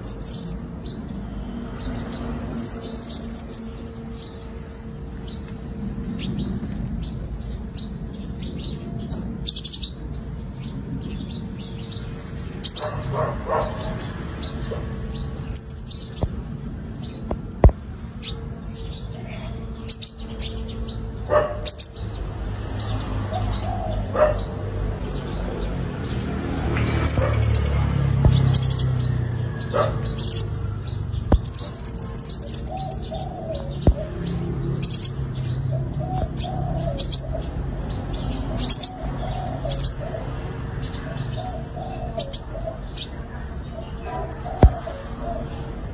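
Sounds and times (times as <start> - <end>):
bird chirps and trills: 0.0 - 45.9.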